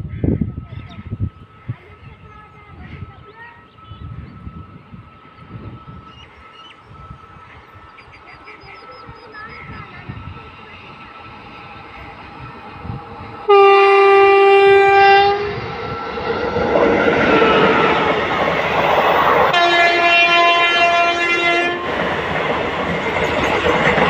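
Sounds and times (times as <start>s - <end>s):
train coaches rumbling past: 0.0s - 24.0s
train horn blasts: 13.5s - 15.8s, 17.3s - 18.1s, 19.5s - 22.1s
train wheel clatter: 21.8s - 24.0s.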